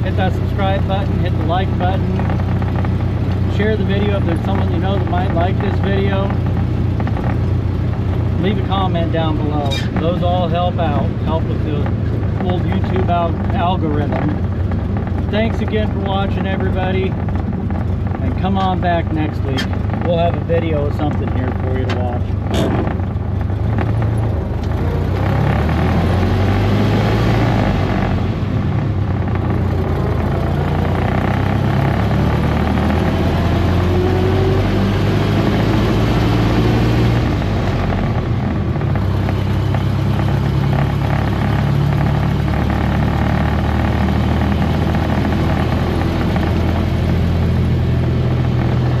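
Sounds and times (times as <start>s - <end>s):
car engine running: 0.0s - 49.0s.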